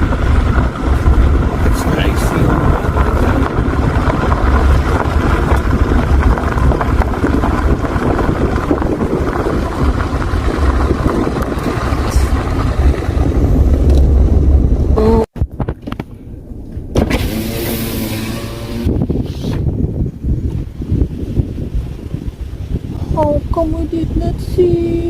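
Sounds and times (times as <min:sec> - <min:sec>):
car road noise: 0:00.0 - 0:25.0
wind buffeting microphone: 0:00.0 - 0:25.0.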